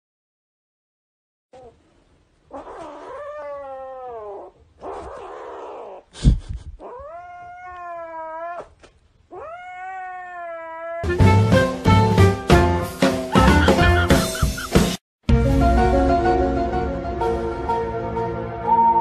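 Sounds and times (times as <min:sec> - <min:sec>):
kitten yowling: 0:02.5 - 0:06.0, 0:06.8 - 0:11.0.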